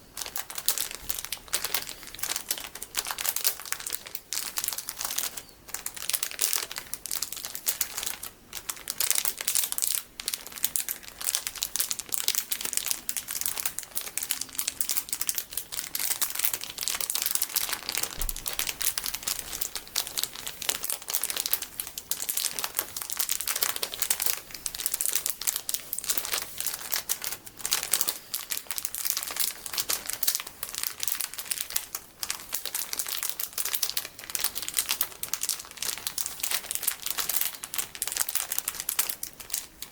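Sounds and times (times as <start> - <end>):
plastic packaging crinkling: 0.0 - 39.9.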